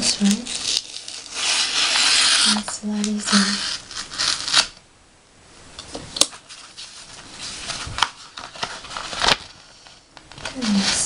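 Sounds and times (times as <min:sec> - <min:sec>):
letter opener scraping paper: 0:00.2 - 0:04.7
paper envelope rustling: 0:06.3 - 0:11.0.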